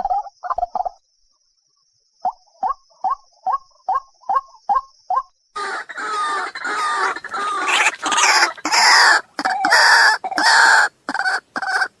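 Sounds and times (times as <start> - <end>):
waterhen calling harshly: 5.6 - 12.0.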